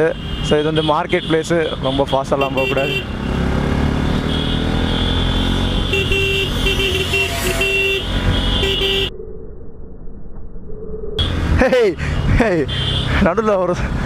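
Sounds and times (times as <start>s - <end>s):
motorcycle engine: 2.7s - 9.2s, 11.2s - 13.2s
vehicle horn short toots: 4.3s - 9.1s
wind rumble: 7.2s - 12.6s.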